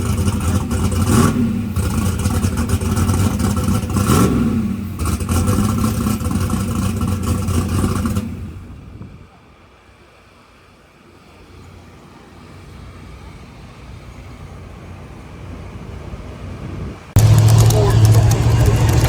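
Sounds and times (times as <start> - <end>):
loud drag racing engine revving: 0.0 - 8.8, 17.2 - 19.0.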